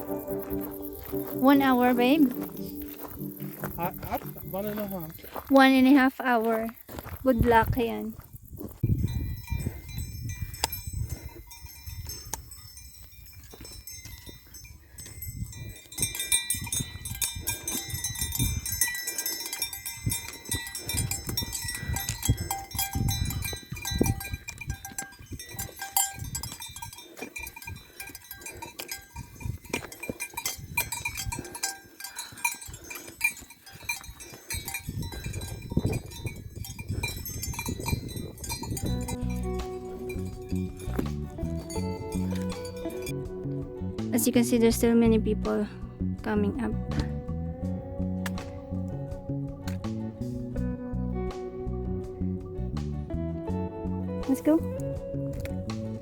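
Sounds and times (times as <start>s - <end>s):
livestock bells clanking: 0.0s - 6.6s, 8.8s - 43.3s.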